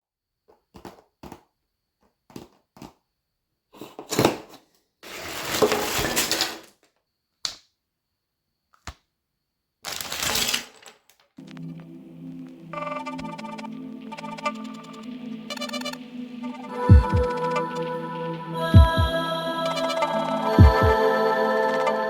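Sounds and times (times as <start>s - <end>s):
plastic pieces clicking: 9.8s - 11.4s
plastic bags crinkling: 9.9s - 11.1s.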